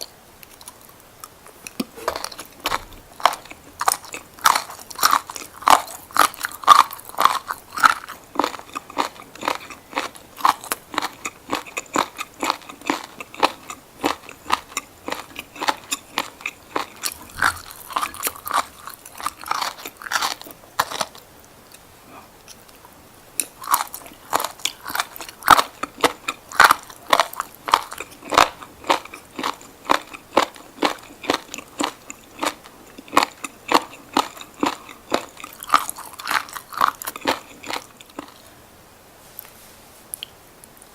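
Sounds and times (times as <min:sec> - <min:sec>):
crunchy chewing of seaweed: 0:00.0 - 0:21.8, 0:23.4 - 0:38.5.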